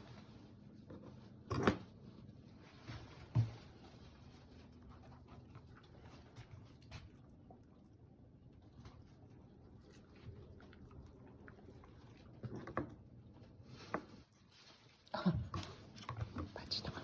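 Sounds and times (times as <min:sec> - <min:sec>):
dog eating: 0:04.7 - 0:13.7.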